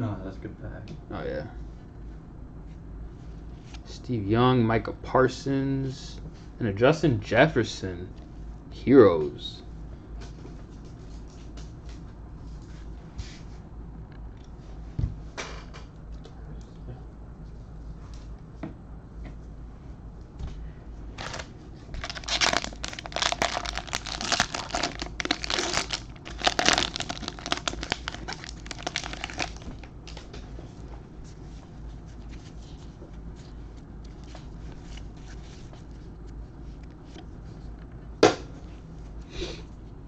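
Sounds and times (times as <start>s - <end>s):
card pack wrapper crinkling and tearing: 21.2s - 30.3s.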